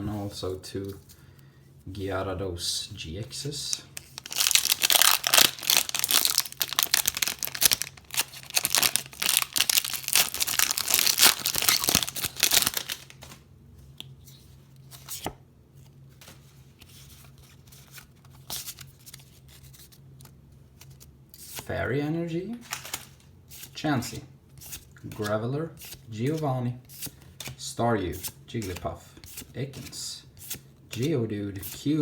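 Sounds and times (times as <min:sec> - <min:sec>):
foil wrapper tearing and crinkling: 0:04.0 - 0:13.3.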